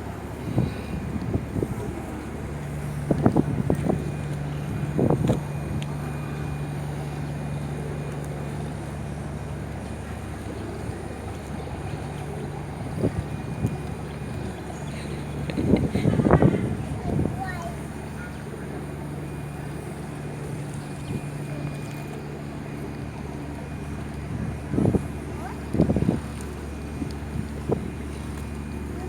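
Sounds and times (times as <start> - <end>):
wind rumbling on microphone: 0.0 - 7.1, 10.3 - 18.3, 23.7 - 29.0
low motor hum: 0.0 - 29.0.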